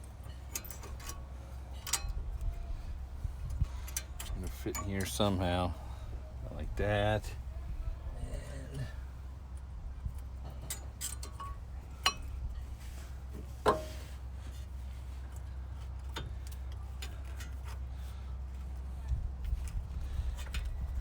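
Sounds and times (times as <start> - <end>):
metal tools clinking: 0.2 - 2.2, 3.8 - 5.4, 10.5 - 12.3.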